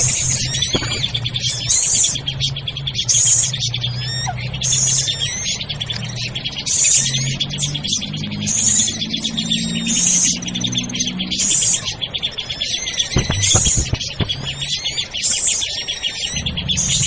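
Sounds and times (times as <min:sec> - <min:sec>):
harsh chattering bursts: 0:00.0 - 0:02.3, 0:12.5 - 0:15.6
small birds calling: 0:00.0 - 0:17.0
steady low hum: 0:13.1 - 0:15.0.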